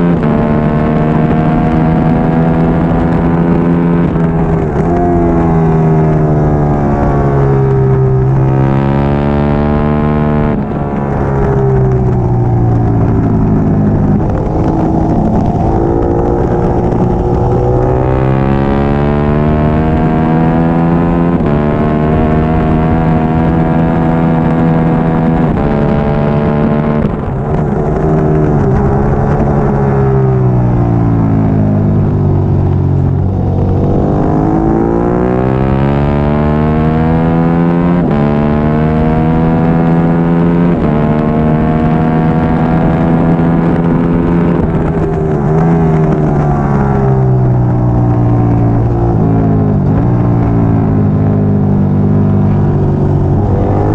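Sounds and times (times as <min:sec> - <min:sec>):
motorcycle engine revving with upshifts: 0:00.0 - 0:53.9.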